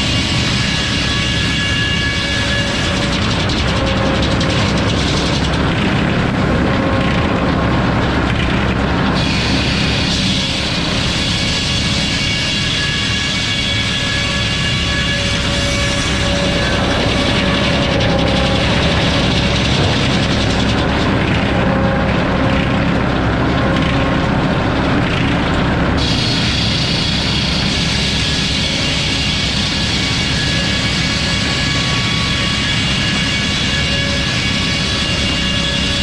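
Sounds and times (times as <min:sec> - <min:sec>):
high-pitched whine: 0:00.0 - 0:36.0
sawmill mechanical drone: 0:00.0 - 0:36.0.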